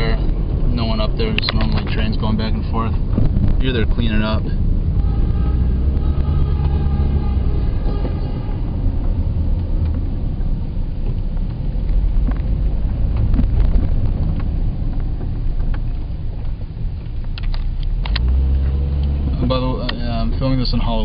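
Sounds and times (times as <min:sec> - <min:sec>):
car engine and tyre rumble: 0:00.0 - 0:21.0
sharp clicks: 0:11.4 - 0:19.2.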